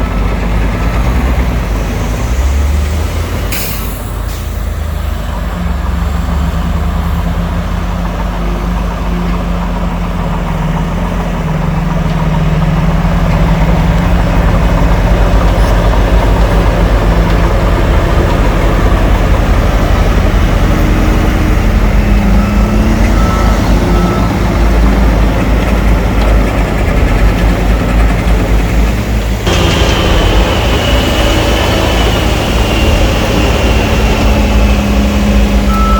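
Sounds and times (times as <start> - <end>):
heavy diesel engine under load: 0.0 - 35.9.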